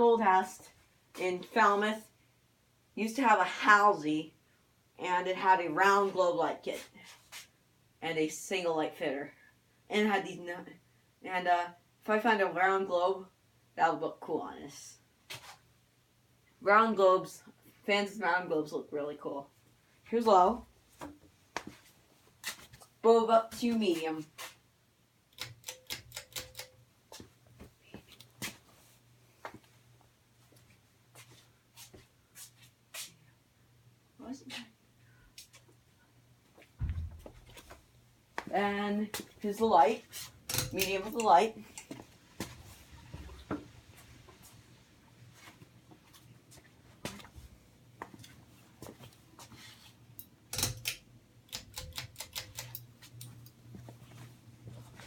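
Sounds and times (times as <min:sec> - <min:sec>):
clicks and ticks: 0:25.3 - 0:26.8, 0:50.2 - 0:53.6
knock: 0:36.8 - 0:37.4.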